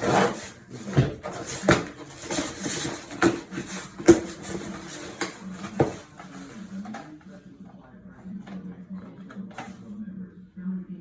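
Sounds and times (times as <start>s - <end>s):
rustling and light scraping: 0.0s - 7.4s.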